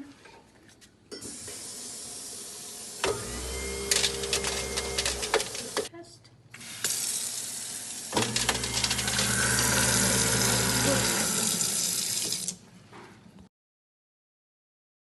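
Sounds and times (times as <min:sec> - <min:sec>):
garbage disposal motor humming: 0:01.3 - 0:05.9, 0:06.5 - 0:12.6
tap water running into sink: 0:06.6 - 0:12.6.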